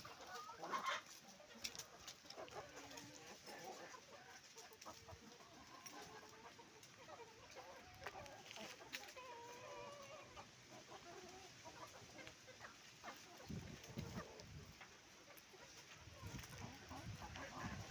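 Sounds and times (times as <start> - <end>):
chickens clucking: 0.0 - 17.9.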